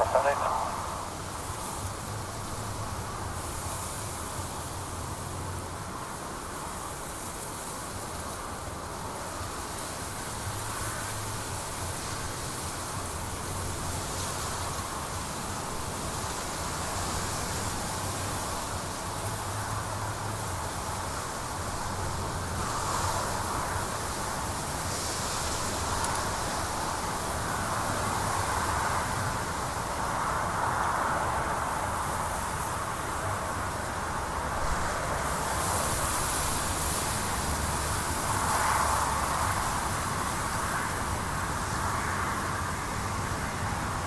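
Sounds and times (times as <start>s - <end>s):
distant jet engines rumbling: 0.0s - 1.4s.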